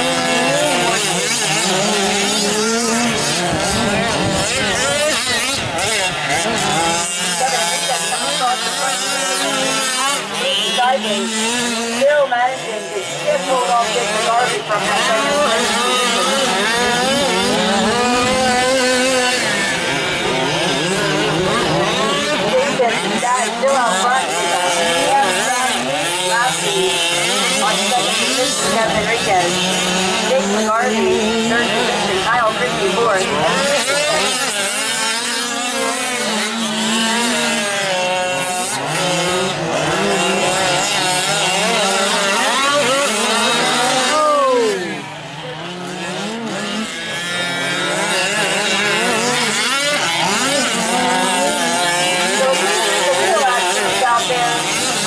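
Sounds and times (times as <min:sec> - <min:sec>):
small two-stroke engines revving: 0:00.0 - 0:55.0.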